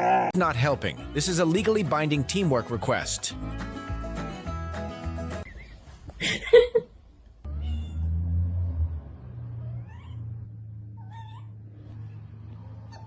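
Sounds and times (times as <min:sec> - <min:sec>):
pet crying: 0:00.0 - 0:00.4, 0:07.5 - 0:08.1, 0:09.7 - 0:11.7.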